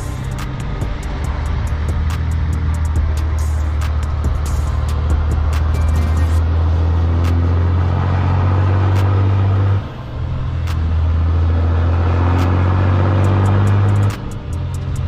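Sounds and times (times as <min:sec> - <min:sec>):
truck diesel engine droning: 0:00.0 - 0:15.0.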